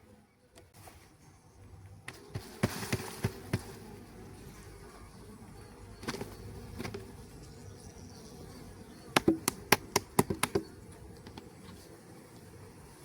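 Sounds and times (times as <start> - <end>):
honeybees buzzing: 0.0 - 13.0
wooden hive parts knocking: 9.1 - 11.6.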